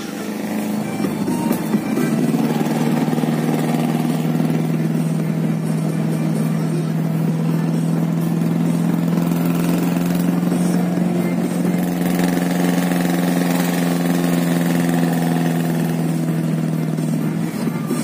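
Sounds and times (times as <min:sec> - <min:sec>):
car engine droning: 0:00.0 - 0:18.0
road noise: 0:00.0 - 0:18.0.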